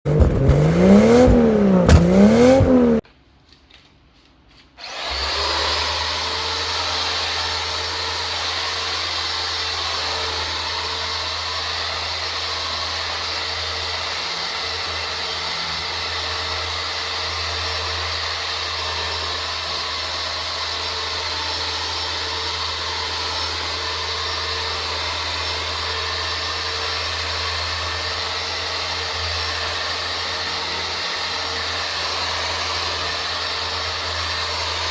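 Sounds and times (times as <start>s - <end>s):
electric sander running: 0.1s - 3.0s, 4.8s - 34.9s
rising and falling tone: 0.1s - 3.0s.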